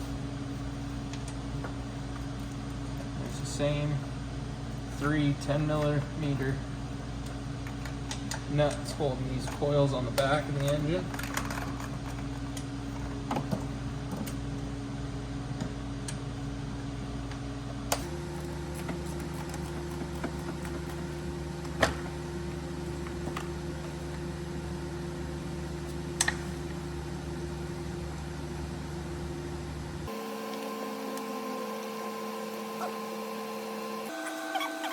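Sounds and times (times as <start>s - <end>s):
motor humming: 16.9s - 34.9s.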